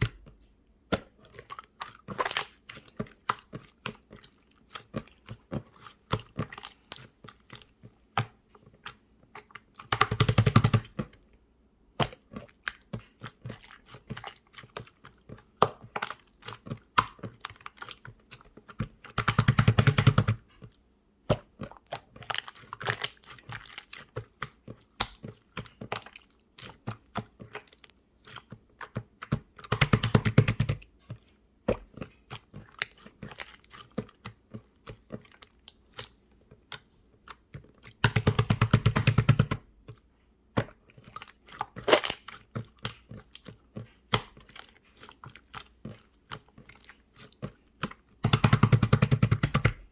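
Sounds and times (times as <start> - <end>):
slime sticky clicks and pops: 25.0 - 25.2.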